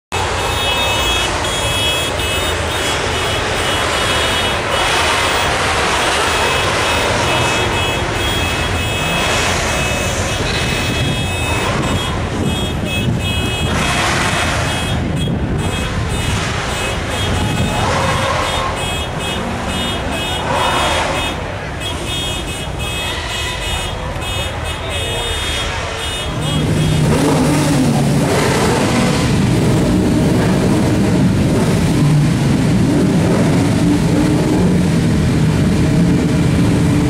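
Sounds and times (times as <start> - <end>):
motorcycle engines revving: 0.1 - 37.0.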